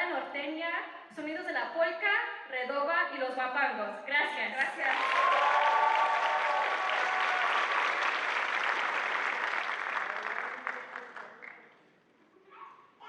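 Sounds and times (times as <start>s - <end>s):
audience applauding: 4.7s - 11.7s
audience cheering: 4.8s - 10.8s.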